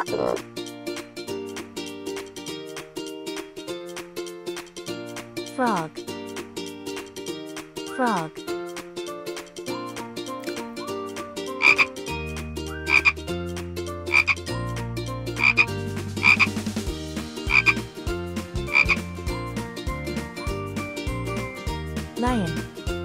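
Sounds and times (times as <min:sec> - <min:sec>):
frog croaking: 0:11.6 - 0:11.9, 0:12.9 - 0:13.2, 0:14.1 - 0:14.4, 0:15.4 - 0:16.5, 0:17.5 - 0:17.8, 0:18.7 - 0:19.0.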